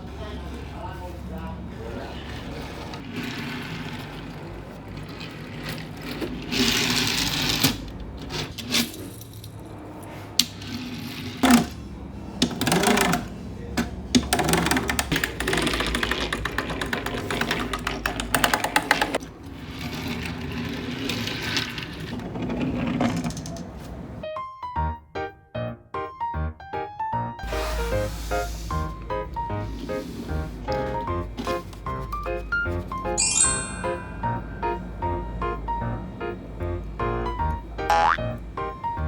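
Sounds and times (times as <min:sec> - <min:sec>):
plastic toy parts clicking and rattling: 0:02.8 - 0:09.6, 0:12.4 - 0:23.7.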